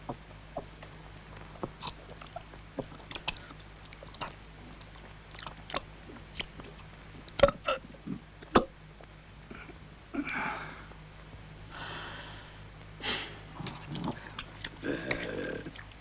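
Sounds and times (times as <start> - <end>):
person chewing and smacking: 0.1 - 7.7, 13.6 - 16.0.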